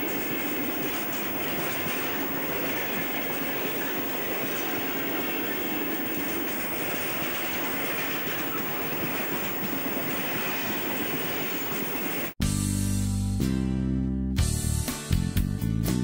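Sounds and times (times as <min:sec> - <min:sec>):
freight wagons rumbling on rails: 0:00.0 - 0:12.4.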